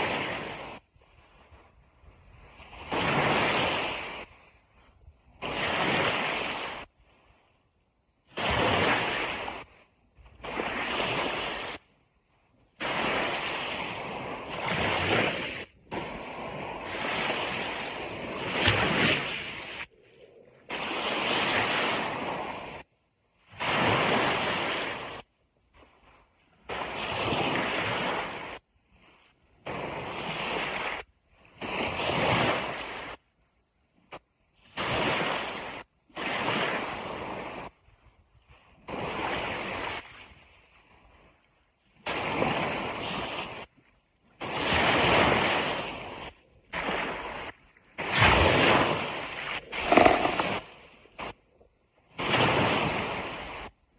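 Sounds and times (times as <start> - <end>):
sea waves washing on beach: 0.0 - 4.6, 5.4 - 7.4, 8.2 - 11.9, 12.6 - 22.9, 41.1 - 53.9.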